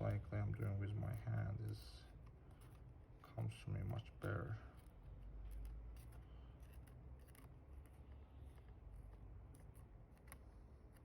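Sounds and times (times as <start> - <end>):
small clicks and scrapes: 0.1 - 11.0.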